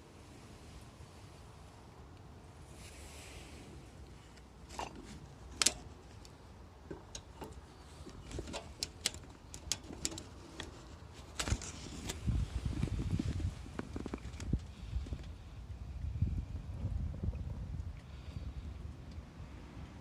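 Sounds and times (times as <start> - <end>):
low fluttering rumble: 11.5 - 19.1.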